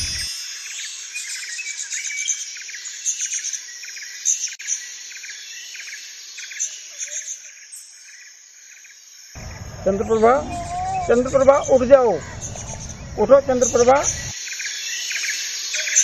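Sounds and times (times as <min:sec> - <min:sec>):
insects droning: 0:04.8 - 0:15.9
birds chirping: 0:09.4 - 0:14.4.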